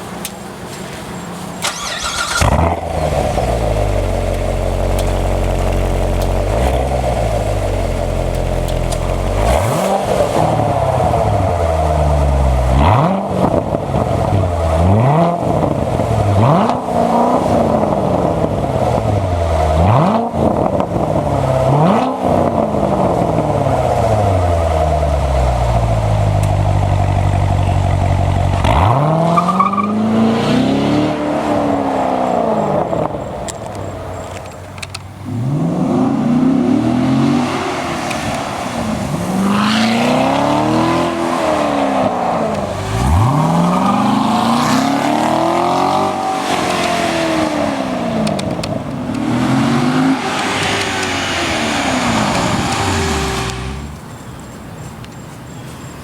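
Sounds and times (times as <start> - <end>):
car engine idling: 0.0 - 12.8, 22.6 - 29.0, 32.1 - 46.4, 47.3 - 55.7
car engine starting: 0.0 - 55.2
car engine revving: 1.5 - 54.2.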